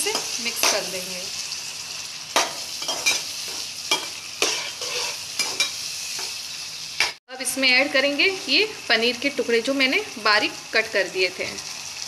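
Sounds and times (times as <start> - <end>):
tomatoes sizzling in oil: 0.0 - 12.0
metal spatula scraping pan: 2.4 - 6.4.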